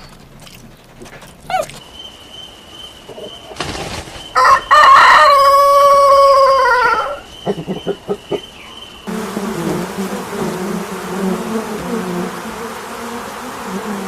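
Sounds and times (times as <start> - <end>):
rooster crowing: 4.4 - 7.3
chicken clucking: 4.4 - 8.6.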